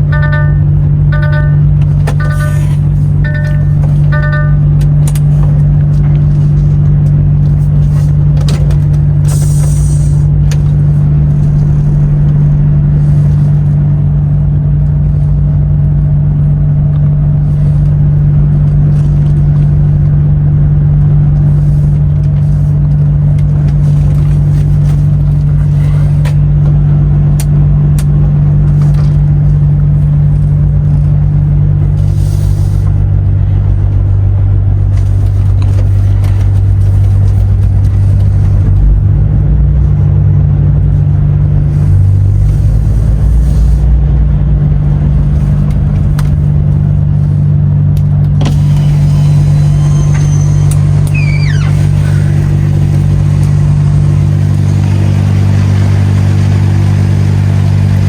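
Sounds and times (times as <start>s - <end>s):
truck diesel engine droning: 0.0s - 58.0s.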